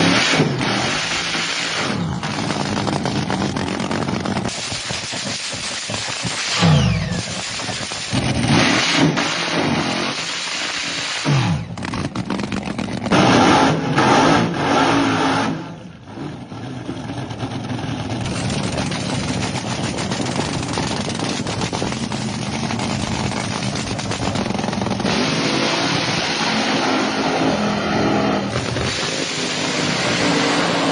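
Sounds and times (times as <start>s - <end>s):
drag car engine revving: 0.0s - 30.9s.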